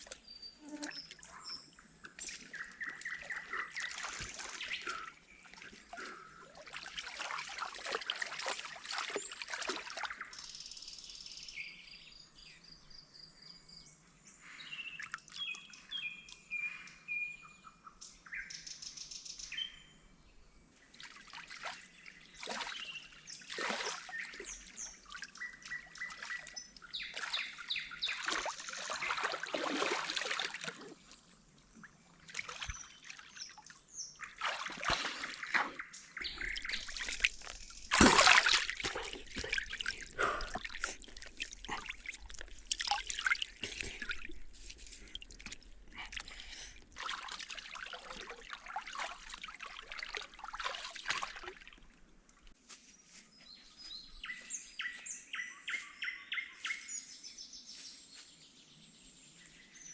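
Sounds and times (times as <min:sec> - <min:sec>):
water trickling and splashing: 0:00.0 - 0:10.5, 0:20.8 - 0:54.7
birds chirping: 0:35.7 - 0:47.0.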